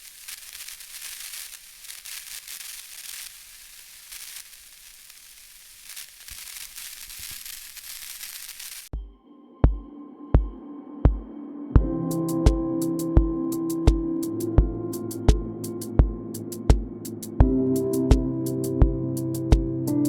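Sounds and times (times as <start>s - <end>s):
crackling hiss: 0.0s - 8.9s
music with deep bass beats: 9.0s - 20.0s.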